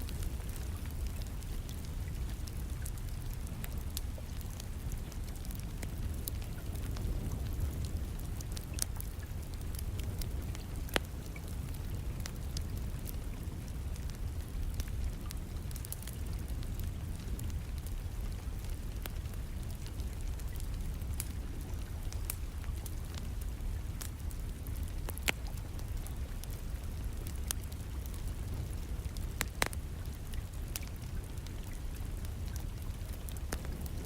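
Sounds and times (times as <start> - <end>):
steady low rumble: 0.0 - 34.0
wood fire crackling and popping: 0.0 - 34.0.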